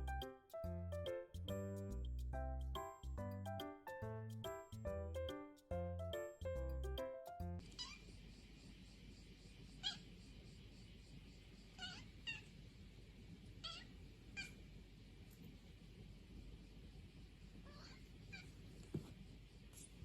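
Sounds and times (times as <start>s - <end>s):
cat meowing: 11.8s - 12.5s, 13.6s - 14.6s, 17.7s - 18.5s.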